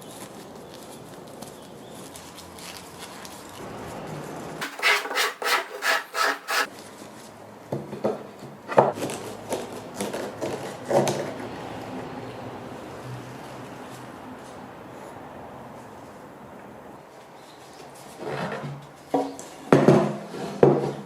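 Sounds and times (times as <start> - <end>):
hand tool rubbing on wood: 4.6 - 6.7.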